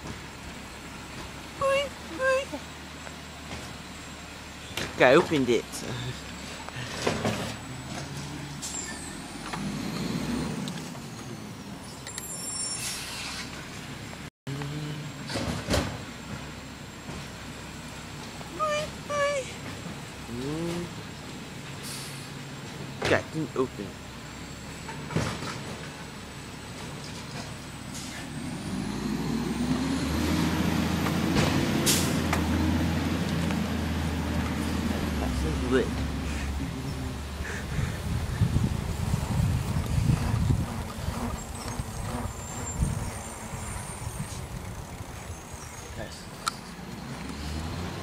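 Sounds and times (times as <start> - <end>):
truck engine speeding up: 0.0 - 21.5, 23.4 - 48.0
air brakes hissing: 12.3 - 13.6, 21.8 - 22.4, 31.8 - 32.3
diesel engine idling: 30.2 - 39.5.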